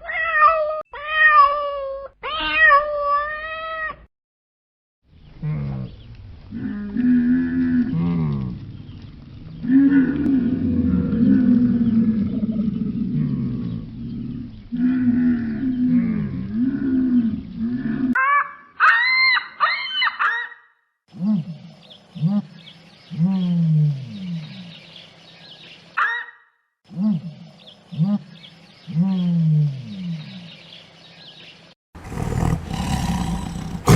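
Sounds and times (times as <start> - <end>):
low drawn-out animal calls: 5.4 - 18.4, 32.0 - 33.9.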